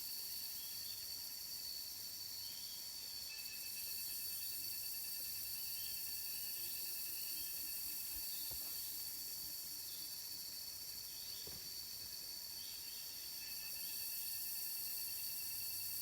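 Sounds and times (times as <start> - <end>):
high-pitched insect drone: 2.4 - 8.4, 12.6 - 16.0.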